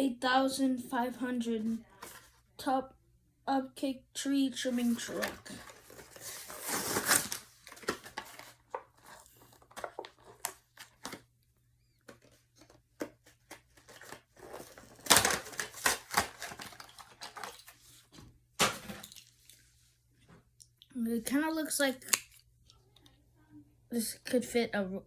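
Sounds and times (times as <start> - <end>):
packaging crinkling and tearing: 4.8 - 11.2, 12.2 - 17.9.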